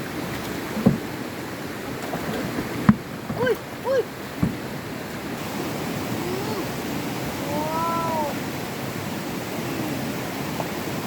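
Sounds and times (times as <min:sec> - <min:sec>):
flowing water: 0:00.0 - 0:11.0.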